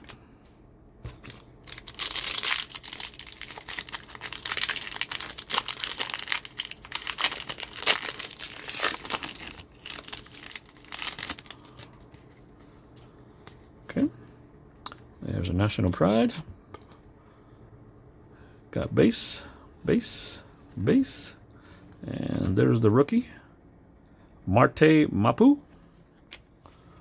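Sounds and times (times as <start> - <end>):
wrapper tearing and crinkling: 1.1 - 12.2.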